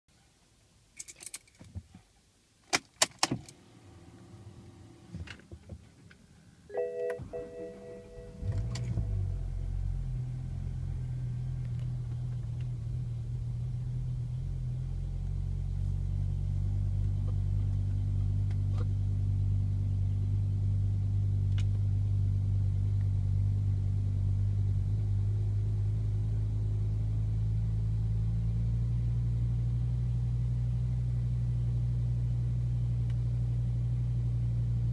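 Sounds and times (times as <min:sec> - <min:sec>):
keys jingling: 0:01.0 - 0:01.6
car engine starting and idling: 0:02.8 - 0:34.9
short tone: 0:06.7 - 0:09.8.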